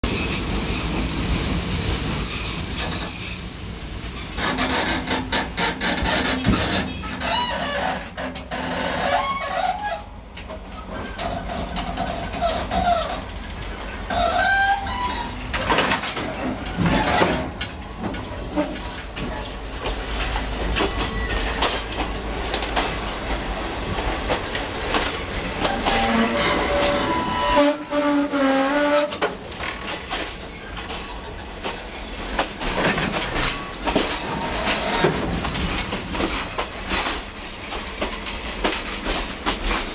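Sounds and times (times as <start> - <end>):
metallic wheel squeals: 0.0 - 10.1, 14.1 - 15.5, 25.6 - 29.2, 33.5 - 36.3
train cars rumbling and rattling: 0.0 - 39.9
wheels clattering on rails: 4.1 - 39.9.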